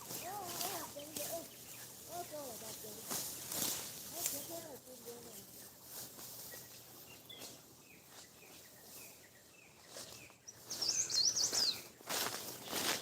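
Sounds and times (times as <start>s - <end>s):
rustling: 0.0s - 7.7s
birds chirping: 0.0s - 13.0s.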